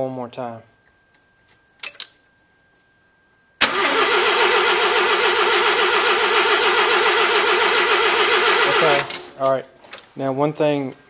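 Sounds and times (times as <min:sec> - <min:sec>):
starter cranking engine: 0:03.6 - 0:09.4
rotary engine running: 0:03.7 - 0:09.4.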